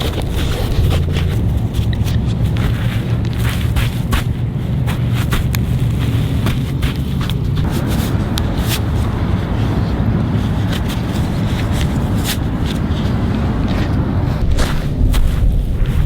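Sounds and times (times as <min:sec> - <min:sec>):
low rumble: 0:07.4 - 0:16.0.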